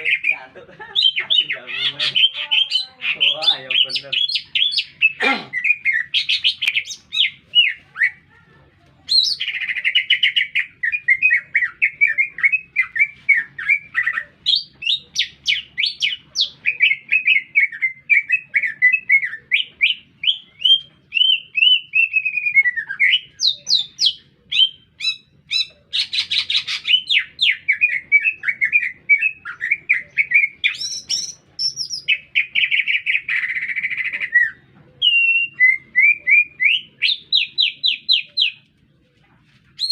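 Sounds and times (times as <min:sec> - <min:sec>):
buzzy rattling bird phrases: 0:00.0 - 0:17.1
bird song chirps and whistles: 0:09.1 - 0:38.6.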